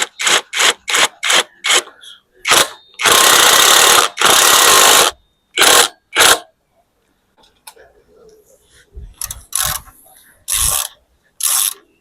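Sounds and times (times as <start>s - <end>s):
power tool bursts: 2.5s - 6.5s.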